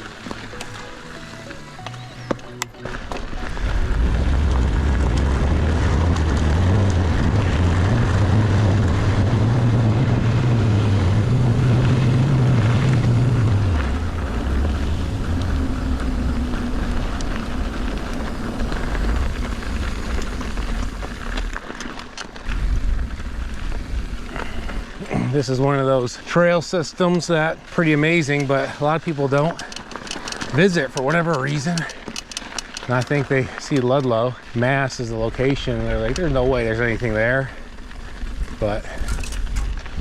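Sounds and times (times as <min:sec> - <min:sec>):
rumble of bike on trail: 0:00.0 - 0:40.0
wind buffeting microphone: 0:03.6 - 0:21.5.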